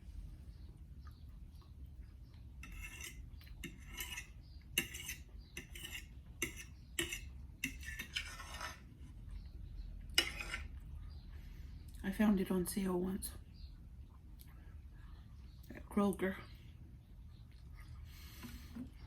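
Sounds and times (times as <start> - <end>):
cutlery clinking on dish: 2.6 - 8.7.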